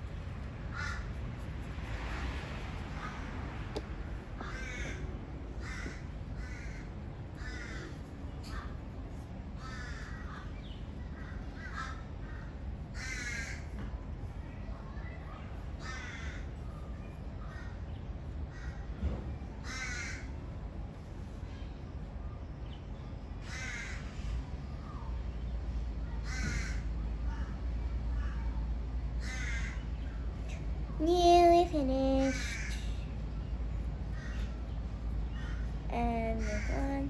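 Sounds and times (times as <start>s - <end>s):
steady low hum: 0.0s - 37.0s
bird cawing: 0.7s - 1.2s, 4.4s - 8.8s, 9.6s - 10.5s, 11.2s - 13.7s, 15.8s - 16.4s, 19.6s - 20.3s, 23.4s - 24.2s, 26.2s - 26.9s, 29.2s - 29.8s, 32.2s - 33.0s, 34.1s - 34.6s.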